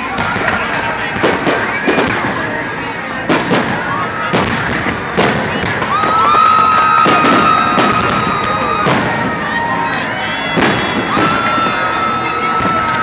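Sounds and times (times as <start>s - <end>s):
fireworks bangs: 0.0s - 13.0s
descending firework whistles: 1.2s - 2.3s, 5.2s - 13.0s.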